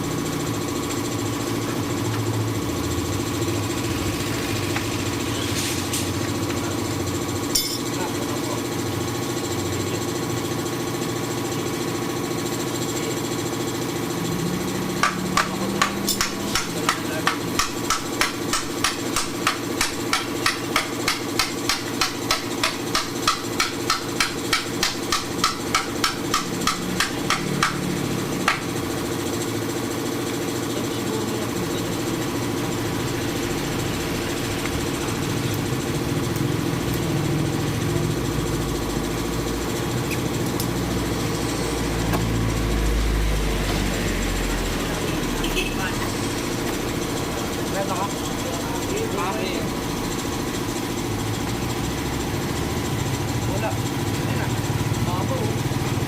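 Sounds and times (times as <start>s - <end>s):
engine hum: 12.5s - 20.8s, 25.4s - 56.0s
rapid hammer blows: 15.0s - 28.8s.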